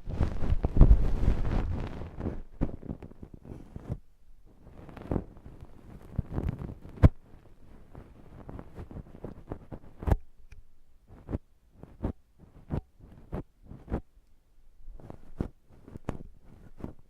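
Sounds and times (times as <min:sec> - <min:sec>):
scratching and crackling of earwax: 0:00.0 - 0:17.0.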